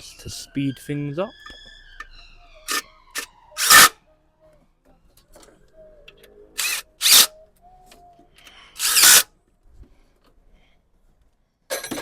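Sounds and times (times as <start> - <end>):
power drill driving a bolt: 2.7 - 3.9, 6.6 - 7.3, 8.8 - 9.3.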